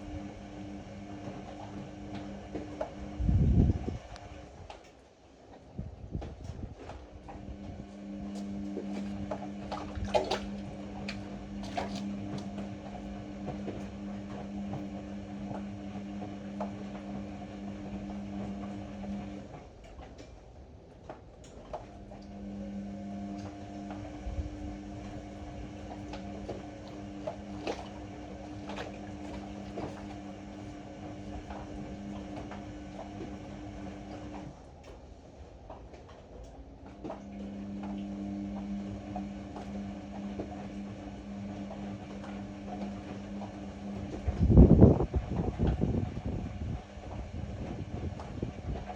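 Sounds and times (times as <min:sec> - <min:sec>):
washing machine motor humming: 0:00.0 - 0:48.9
water sloshing: 0:03.9 - 0:14.9, 0:23.4 - 0:37.5.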